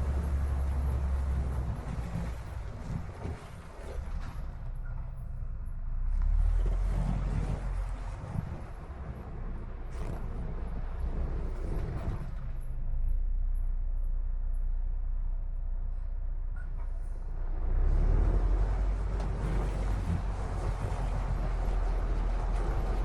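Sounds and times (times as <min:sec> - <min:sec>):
diesel truck engine drone: 0:00.0 - 0:23.0.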